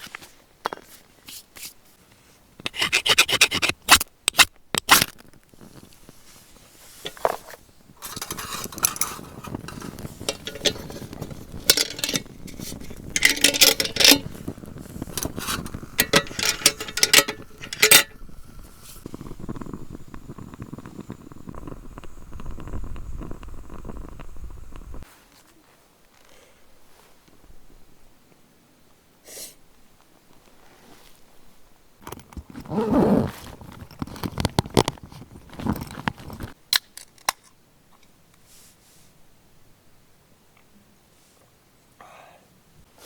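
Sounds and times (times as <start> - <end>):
metal cookware clattering: 8.0 - 18.2.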